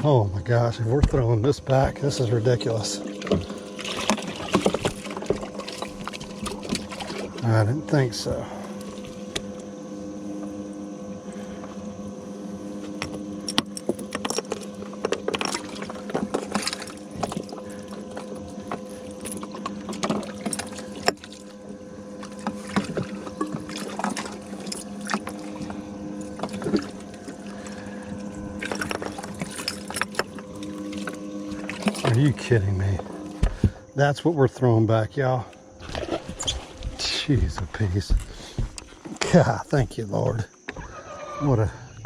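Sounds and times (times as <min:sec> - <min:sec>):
electronic tone: 0:00.0 - 0:38.0
electric hum: 0:00.0 - 0:42.0
water splashing and pouring: 0:02.8 - 0:07.5, 0:22.2 - 0:33.5, 0:35.8 - 0:37.0.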